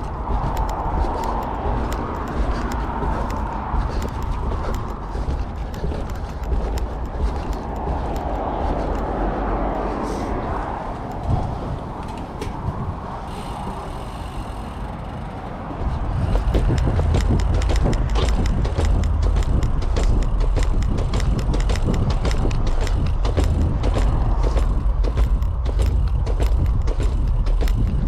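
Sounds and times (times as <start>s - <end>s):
bicycle tyres crunching on gravel: 0.0s - 20.8s
wind rumbling on microphone: 0.0s - 28.0s.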